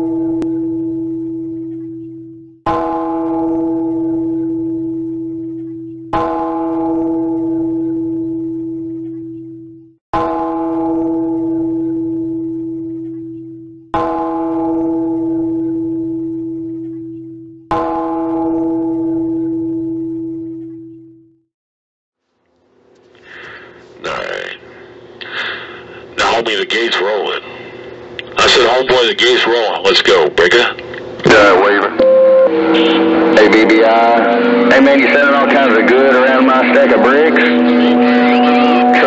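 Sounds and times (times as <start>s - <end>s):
bell-like tone ringing: 31.6s - 39.0s.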